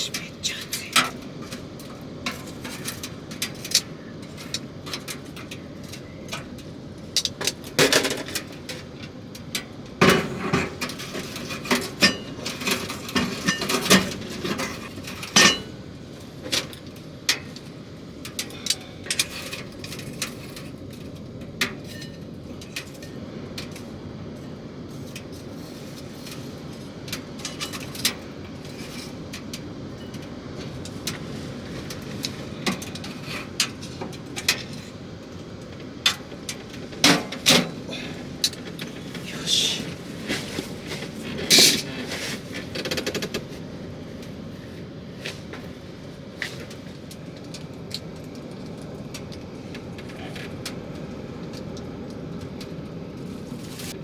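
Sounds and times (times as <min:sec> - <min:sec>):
steady background hiss: 0:00.0 - 0:20.5
pots and cutlery clinking: 0:10.0 - 0:15.8.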